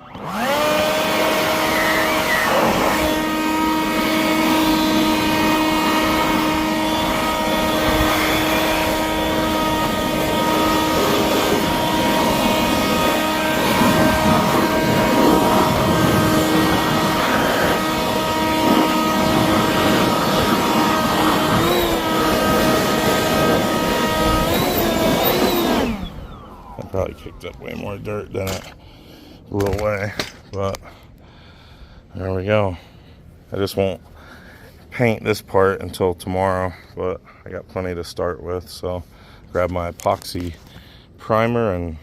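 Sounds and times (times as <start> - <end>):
handheld blower whining: 0.0 - 30.5.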